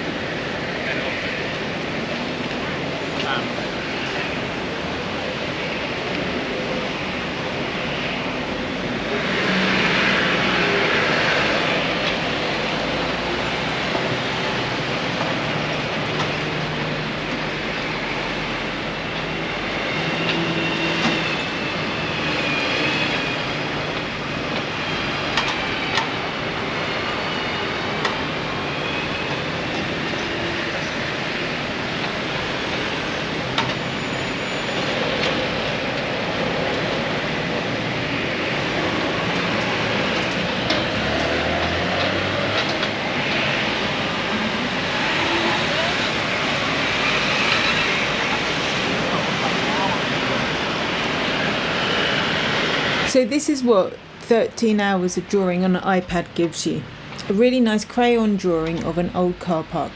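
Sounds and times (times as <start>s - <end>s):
traffic: 0.0s - 59.9s.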